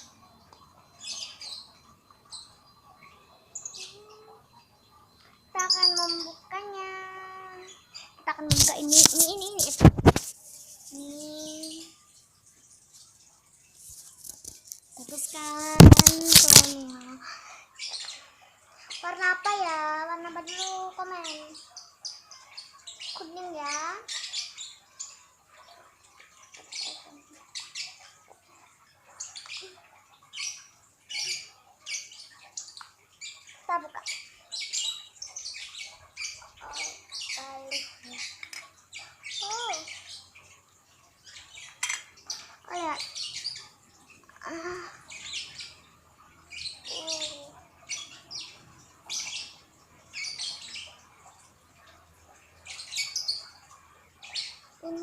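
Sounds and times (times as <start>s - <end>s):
bird chirping: 0.0s - 17.2s, 41.2s - 51.4s
plastic packaging crinkling: 8.5s - 11.0s, 13.8s - 16.8s.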